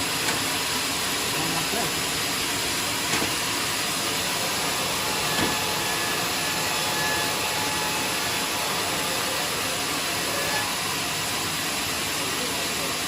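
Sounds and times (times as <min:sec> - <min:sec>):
band saw cutting log: 0:02.7 - 0:11.3.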